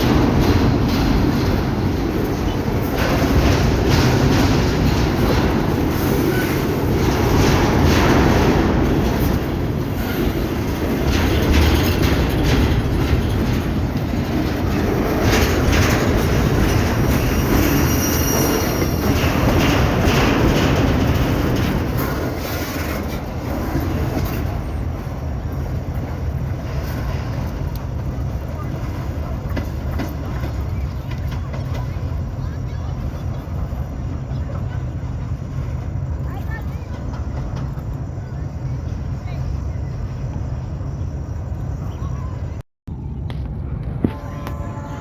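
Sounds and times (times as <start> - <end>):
train wagons rumbling on a bridge: 0.0 - 45.0
wheels clacking over rail joints: 0.0 - 45.0
high wheel squeal: 5.6 - 7.4, 14.9 - 25.1.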